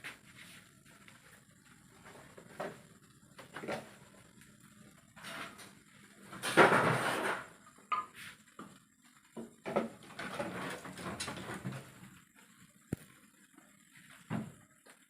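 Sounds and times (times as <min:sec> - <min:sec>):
rustling scrape: 0:05.2 - 0:05.7, 0:06.3 - 0:07.5.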